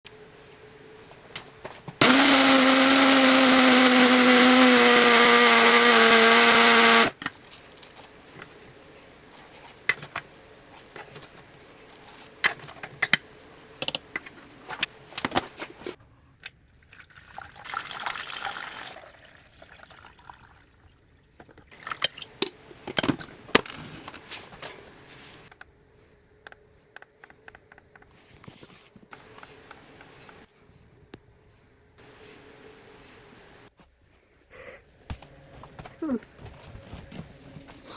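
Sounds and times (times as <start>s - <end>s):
kitchen appliance motor running: 2.0s - 7.2s.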